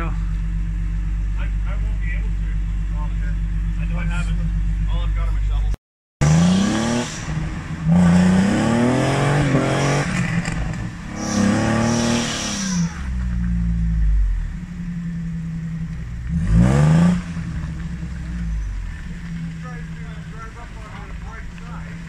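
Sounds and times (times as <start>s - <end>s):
vehicle engine revving: 0.0s - 22.0s.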